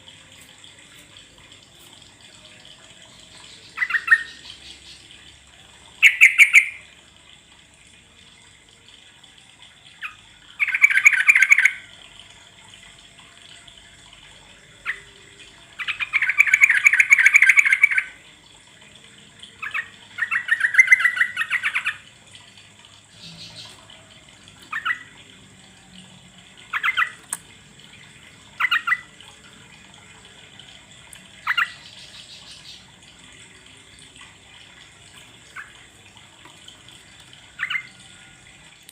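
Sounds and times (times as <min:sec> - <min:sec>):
bird chattering song: 0:03.5 - 0:05.0, 0:06.0 - 0:06.8.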